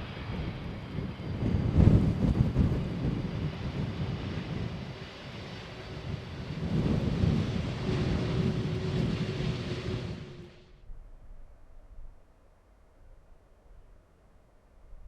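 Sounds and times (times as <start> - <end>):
wind buffeting microphone: 0.0 - 11.4
jet engine rumble: 0.0 - 12.2.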